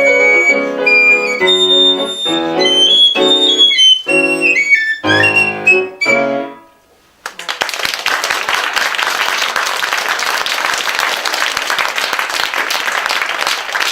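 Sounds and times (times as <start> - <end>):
audience applause: 7.2 - 13.9.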